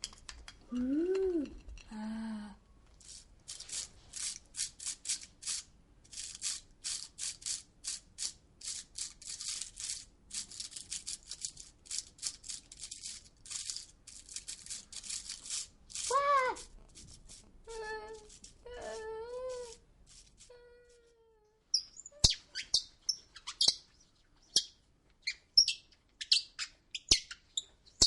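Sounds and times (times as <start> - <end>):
hand shaker shaken: 3.0 - 21.1.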